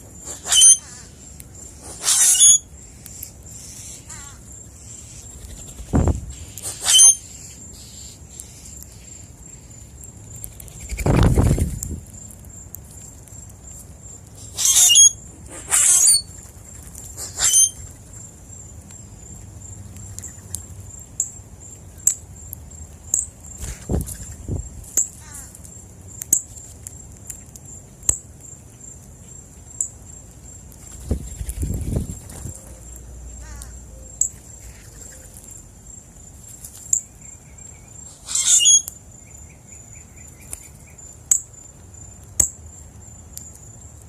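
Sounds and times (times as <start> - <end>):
harsh raspy bird calls: 3.6 - 5.3, 14.4 - 16.3, 38.1 - 38.9.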